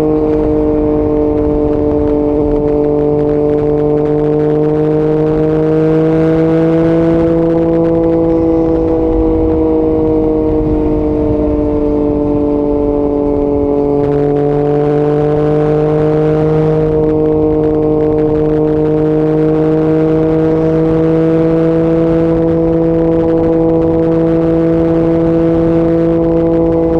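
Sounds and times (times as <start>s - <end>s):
motorcycle engine at high revs: 0.0s - 26.9s
wind rushing: 7.0s - 14.2s.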